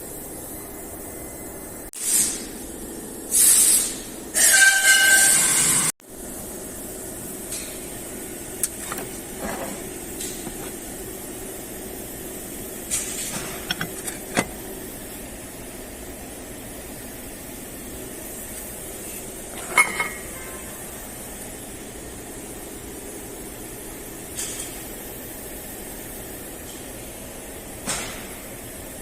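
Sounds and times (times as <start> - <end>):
steady background hum: 0.0 - 29.0
metal tools clicking and knocking: 8.6 - 10.8, 13.6 - 14.6.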